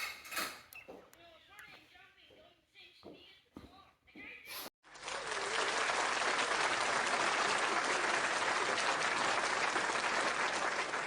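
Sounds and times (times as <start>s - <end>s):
crowd applauding: 4.9s - 11.0s.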